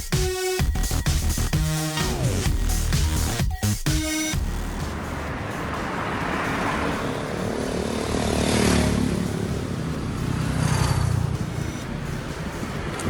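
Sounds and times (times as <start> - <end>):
engine rumble: 4.4 - 13.0.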